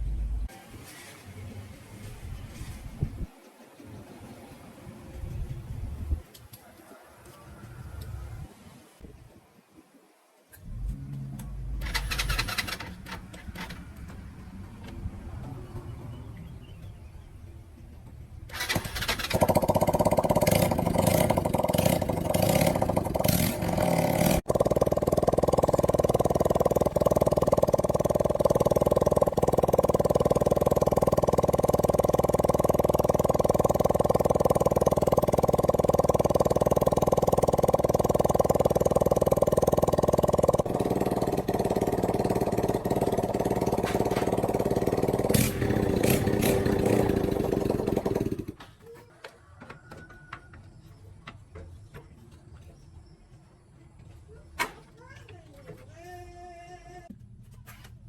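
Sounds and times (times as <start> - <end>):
motorbike engine running: 10.7 - 14.6, 18.5 - 48.6.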